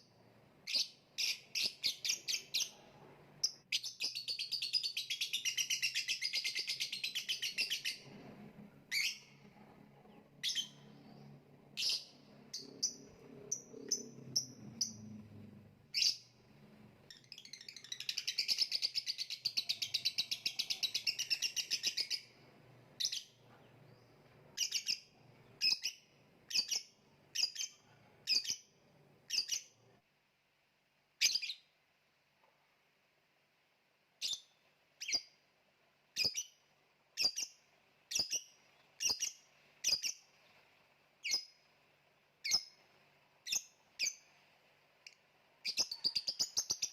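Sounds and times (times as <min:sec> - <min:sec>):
shrill bird chirps: 0:00.6 - 0:16.4, 0:17.0 - 0:22.4, 0:23.0 - 0:29.9, 0:31.2 - 0:31.8, 0:34.2 - 0:35.4, 0:36.2 - 0:40.5, 0:41.2 - 0:41.7, 0:42.4 - 0:42.8, 0:43.4 - 0:44.3, 0:45.6 - 0:46.9.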